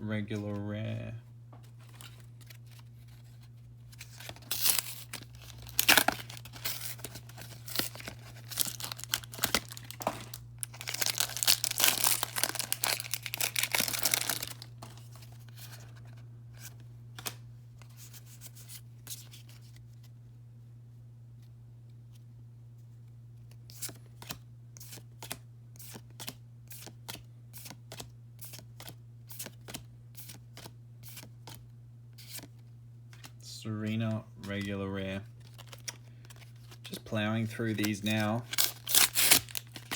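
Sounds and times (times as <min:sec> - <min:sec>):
plastic packaging crinkling and tearing: 0:03.9 - 0:15.1, 0:35.4 - 0:39.9.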